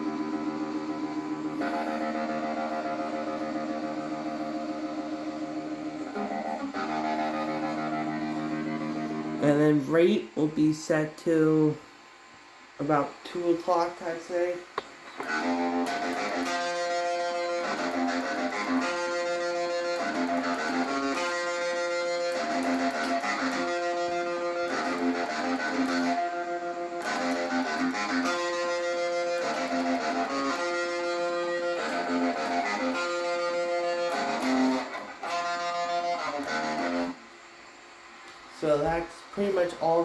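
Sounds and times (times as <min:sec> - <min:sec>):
electric guitar riff with tremolo: 0:00.0 - 0:11.7, 0:13.7 - 0:37.3.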